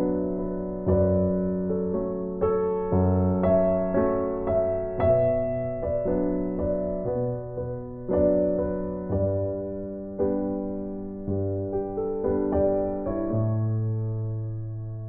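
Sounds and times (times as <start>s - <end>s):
slow gentle piano music: 0.0s - 15.0s.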